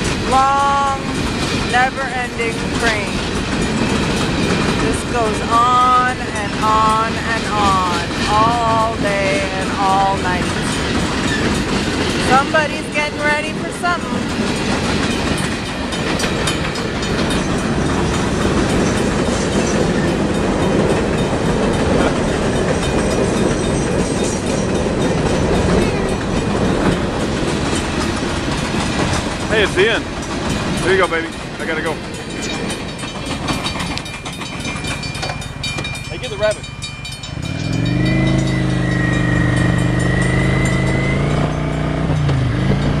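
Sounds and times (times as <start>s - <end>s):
freight train wheels clattering: 0.0s - 43.0s
car engine accelerating: 37.2s - 43.0s.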